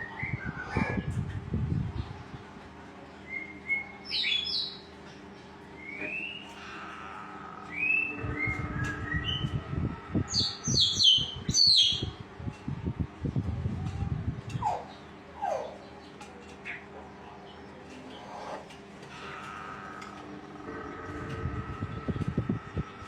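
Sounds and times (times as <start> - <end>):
songbirds whistling: 0.0 - 1.4, 3.2 - 4.9, 5.7 - 6.7, 7.6 - 12.2.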